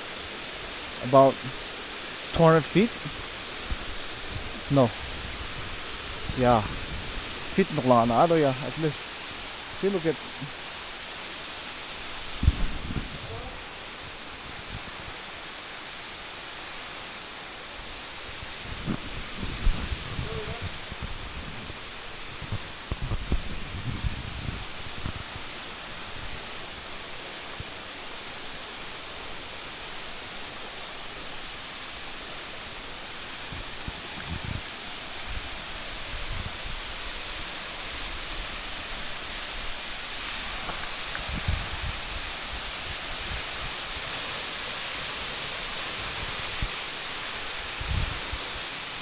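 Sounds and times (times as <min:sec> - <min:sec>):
waterfall roaring: 0:00.0 - 0:23.3, 0:24.6 - 0:49.0
low microphone thumps: 0:12.4 - 0:13.2.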